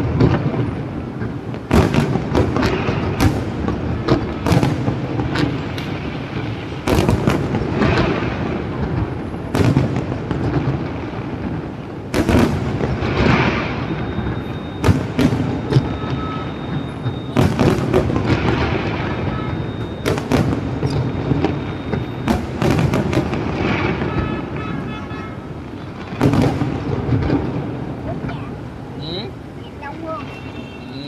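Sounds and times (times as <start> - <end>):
fireworks pops and crackling: 0.0 - 28.7
fireworks bangs: 0.0 - 31.0.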